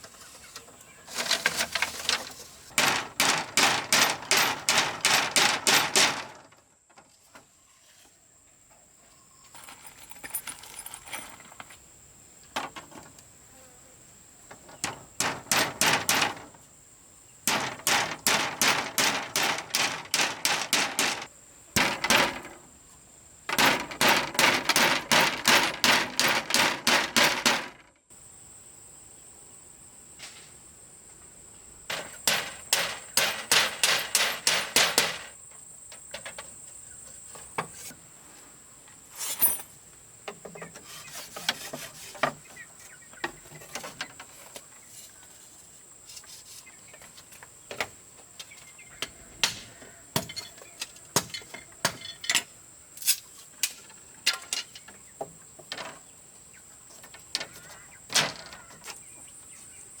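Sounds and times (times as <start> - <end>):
hammer striking wood: 15.2 - 16.5, 17.4 - 22.5, 23.5 - 27.8, 31.9 - 35.3
high insect drone: 28.1 - 38.1.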